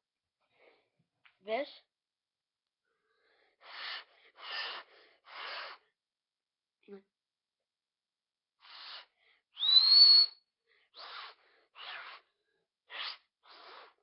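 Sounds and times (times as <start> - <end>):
person blowing breathy puffs: 3.0 - 6.0, 8.6 - 14.0
rising whistle: 9.6 - 10.4.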